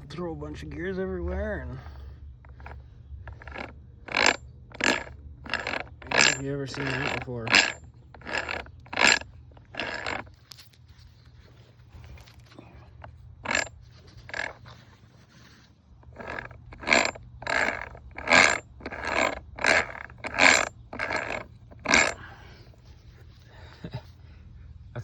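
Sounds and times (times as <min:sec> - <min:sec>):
metal gears scraping: 0:02.4 - 0:10.7, 0:13.4 - 0:15.3, 0:16.0 - 0:22.2.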